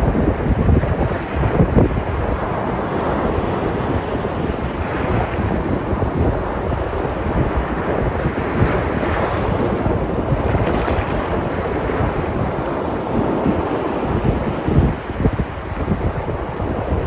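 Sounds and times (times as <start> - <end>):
sea surf washing onto shore: 0.0 - 17.0
wind buffeting microphone: 0.0 - 17.0.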